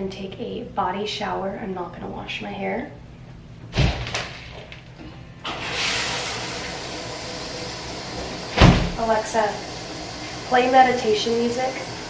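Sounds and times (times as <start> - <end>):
loud thump: 3.7 - 4.3, 8.6 - 9.0
shower water spraying: 5.5 - 12.0.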